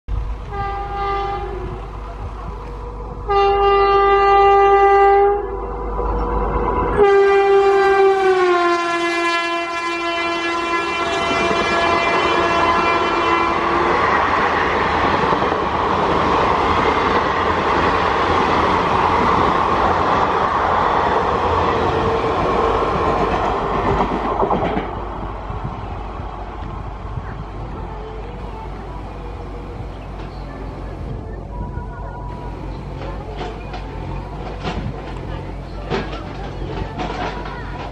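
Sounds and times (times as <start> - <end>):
rail and wheel noise: 0.1 - 37.9
train horn blasts: 0.4 - 2.0, 3.2 - 5.8, 6.9 - 14.4.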